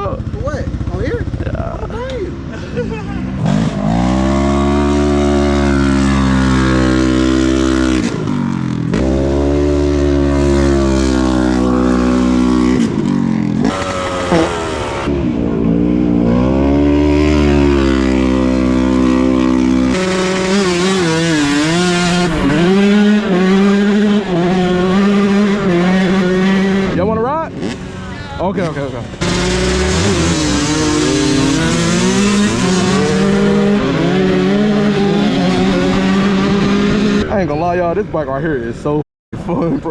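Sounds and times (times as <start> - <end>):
dirt bike engine revving: 0.0 - 37.5.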